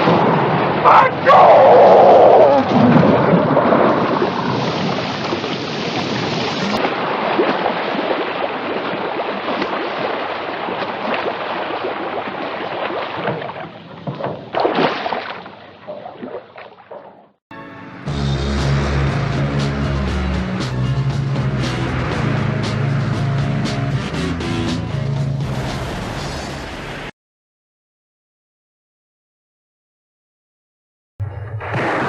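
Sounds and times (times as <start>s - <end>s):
water rushing and splashing: 0.0s - 16.9s, 25.2s - 27.1s.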